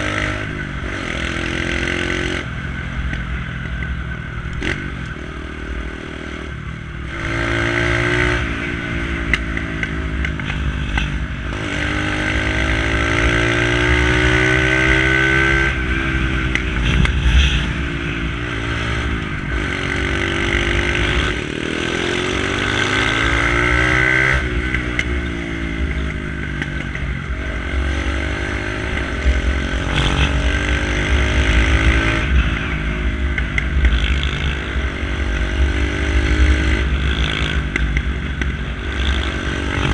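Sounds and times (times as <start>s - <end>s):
motorcycle engine revving: 0.0s - 39.9s
exhaust cracks: 16.5s - 19.6s.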